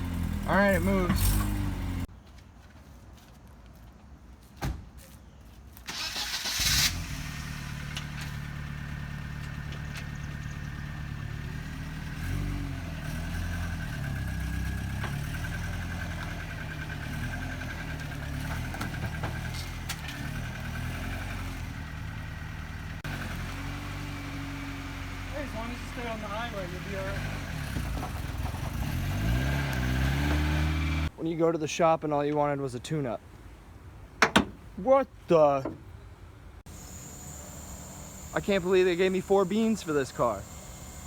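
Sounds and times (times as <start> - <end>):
car engine cranking and starting: 0.0 - 2.1, 5.9 - 31.1, 36.7 - 41.0
engine running: 0.0 - 2.1, 5.9 - 31.1, 36.7 - 41.0.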